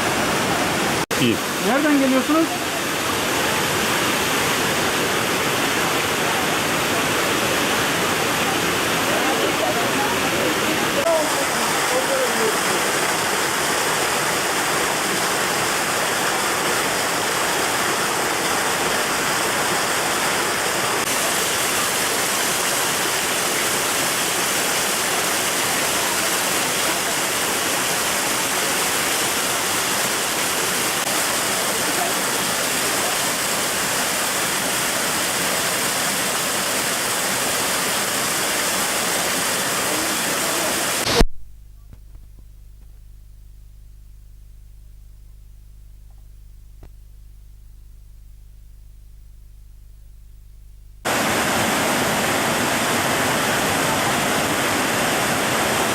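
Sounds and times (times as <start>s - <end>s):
waterfall roaring: 0.0s - 41.2s, 51.1s - 55.9s
faint low hum: 41.2s - 51.0s.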